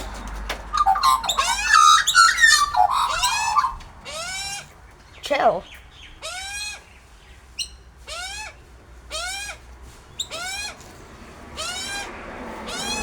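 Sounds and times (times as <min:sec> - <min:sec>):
bird harsh drawn-out call: 0:00.7 - 0:06.9, 0:11.6 - 0:13.0.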